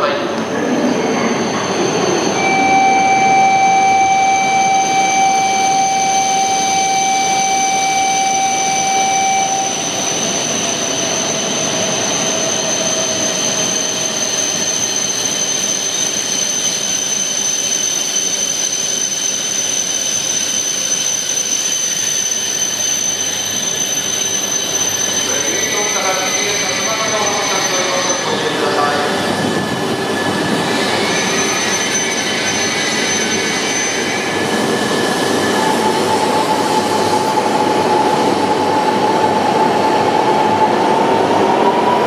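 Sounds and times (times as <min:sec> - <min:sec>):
train equipment high whine: 0:00.0 - 0:42.0
train pulling away: 0:00.0 - 0:42.0
electronic buzzer tone: 0:02.4 - 0:10.0.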